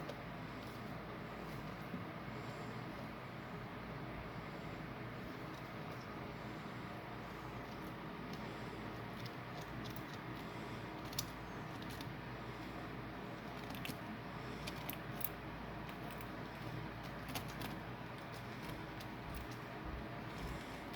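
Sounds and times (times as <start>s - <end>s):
eating clicks and crunches: 7.6s - 20.9s.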